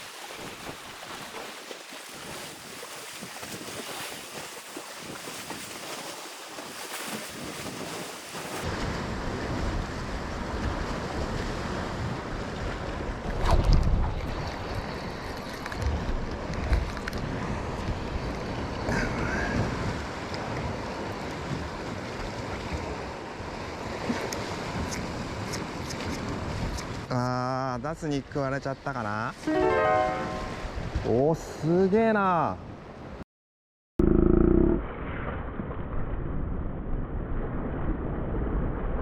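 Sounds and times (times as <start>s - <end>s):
waves washing on rocky shore: 0.0s - 12.9s.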